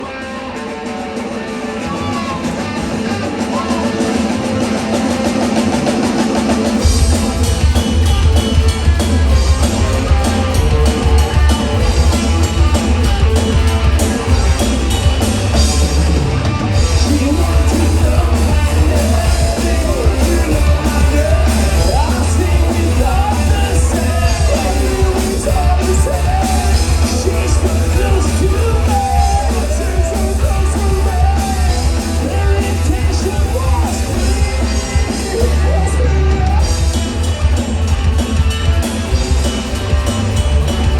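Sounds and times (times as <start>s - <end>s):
rock band playing live: 0.0s - 40.9s
person singing: 16.8s - 36.9s.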